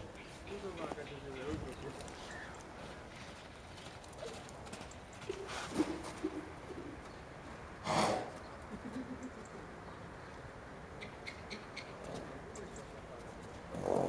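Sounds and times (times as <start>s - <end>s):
bird cooing: 5.3s - 7.2s.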